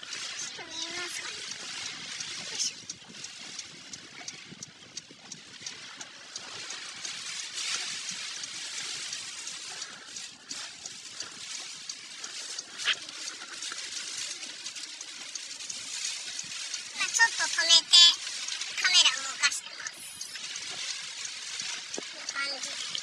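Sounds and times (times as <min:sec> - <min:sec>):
faint ticks: 0:00.0 - 0:23.0
rushing water: 0:00.0 - 0:23.0.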